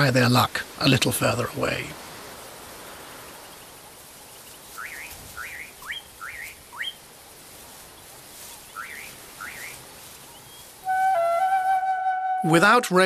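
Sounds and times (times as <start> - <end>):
faint outdoor hiss: 0.0 - 13.0
bird chirping: 3.0 - 7.0, 7.8 - 12.8.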